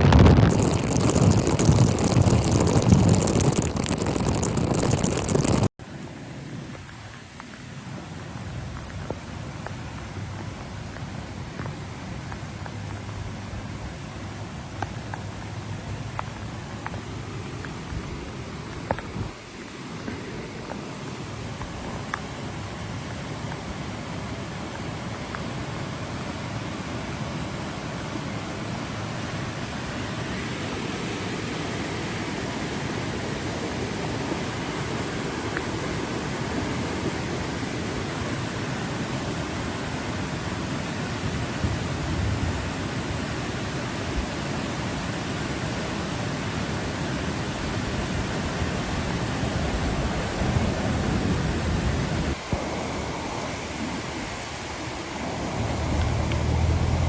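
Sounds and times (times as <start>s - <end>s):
rushing floodwater: 0.0s - 57.0s
low rumble: 55.3s - 57.0s.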